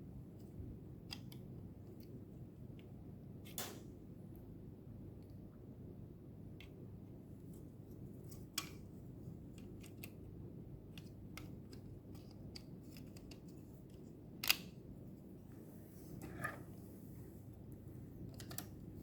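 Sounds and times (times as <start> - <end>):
low steady hum: 0.0 - 19.0
plastic parts clicking: 10.9 - 14.7.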